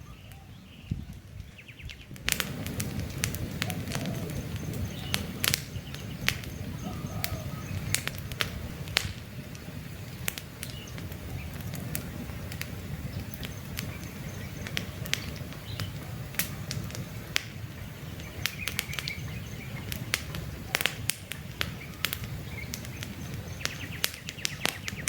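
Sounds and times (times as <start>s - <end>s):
campfire crackling: 0.0s - 25.0s
sharp pops and snaps of fire: 0.3s - 25.0s
faint bird chirps: 3.6s - 8.2s, 17.8s - 25.0s.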